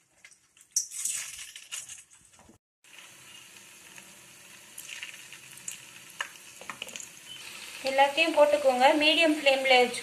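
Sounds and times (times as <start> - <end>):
dough sizzling in hot oil: 2.8 - 10.0.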